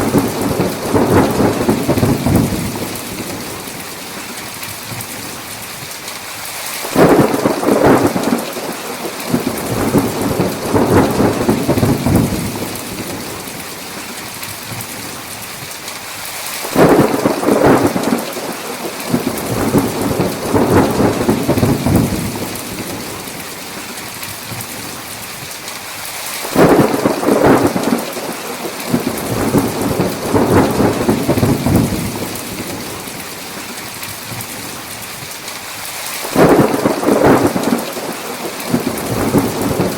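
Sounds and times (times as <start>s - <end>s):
thunder claps: 0.0s - 3.8s, 6.8s - 13.8s, 16.6s - 23.4s, 26.4s - 33.7s, 36.2s - 39.9s
heavy rain: 0.0s - 39.9s.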